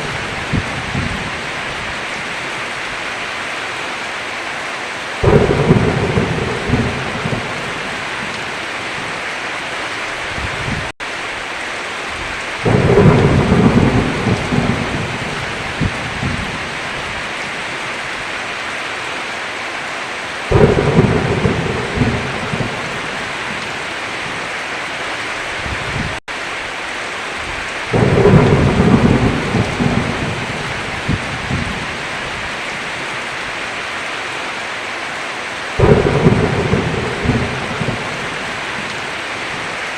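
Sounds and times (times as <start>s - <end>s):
rolling thunder: 0.0s - 1.9s, 5.2s - 9.2s, 12.6s - 17.3s, 20.5s - 24.4s, 27.9s - 32.5s, 35.8s - 39.6s
heavy rain: 0.0s - 39.9s.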